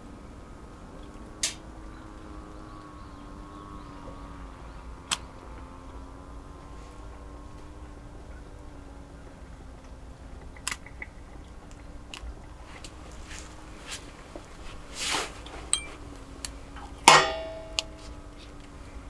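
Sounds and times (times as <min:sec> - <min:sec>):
faint steady hum: 0:00.0 - 0:19.0
short rustle: 0:12.6 - 0:18.5
sharp ringing clink: 0:15.6 - 0:18.2.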